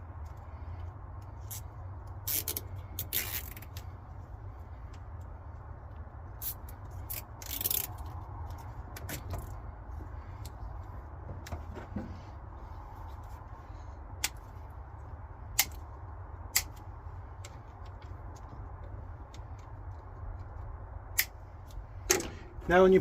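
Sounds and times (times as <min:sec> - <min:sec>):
steady low hum: 0:00.0 - 0:23.0
sharp clicks: 0:15.5 - 0:22.3.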